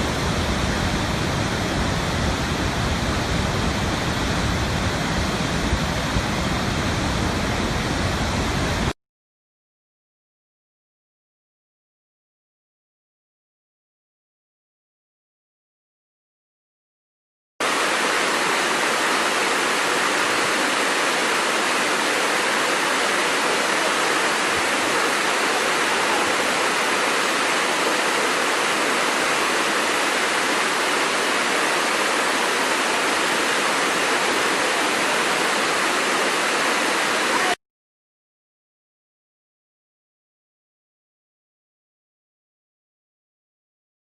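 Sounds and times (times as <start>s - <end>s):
waterfall rushing: 0.0s - 8.9s, 17.6s - 37.6s.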